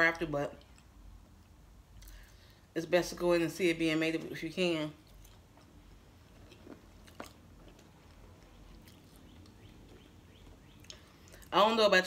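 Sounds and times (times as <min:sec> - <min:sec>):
faint chewing of food: 0:05.0 - 0:11.5
soft mouth clicks: 0:10.8 - 0:11.5.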